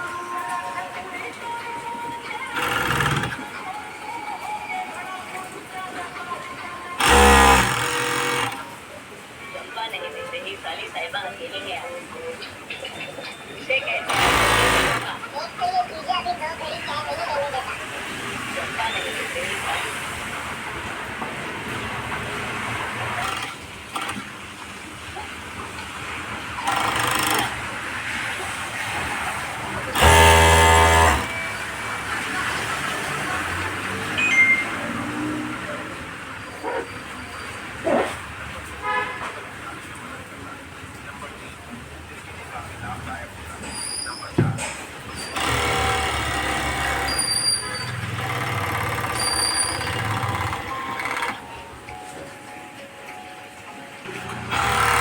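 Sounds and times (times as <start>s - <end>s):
sewing machine motor running: 2.4s - 3.5s, 7.0s - 8.7s, 14.0s - 15.2s, 21.8s - 24.4s, 26.3s - 33.4s, 45.1s - 51.4s, 54.4s - 55.0s.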